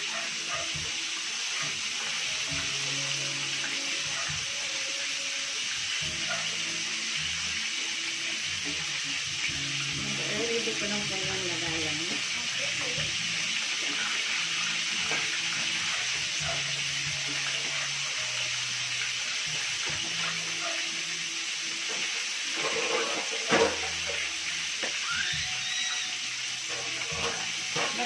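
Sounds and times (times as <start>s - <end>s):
chicken sizzling in hot oil: 0.0s - 28.0s.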